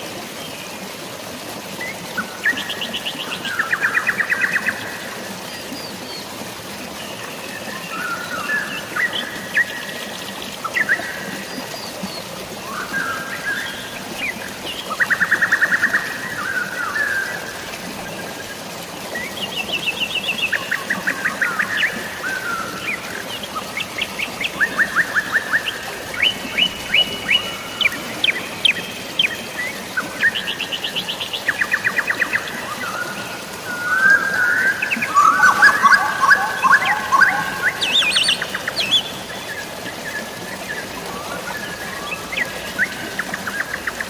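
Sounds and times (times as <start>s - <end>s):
rain falling: 8.0s - 44.0s
songbirds trilling: 19.0s - 44.0s.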